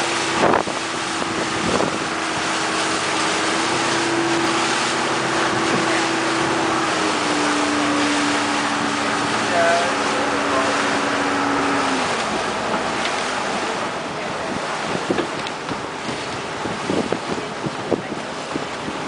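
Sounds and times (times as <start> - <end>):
motorboat engine drone: 0.0 - 19.0
wind buffeting microphone: 0.0 - 19.0.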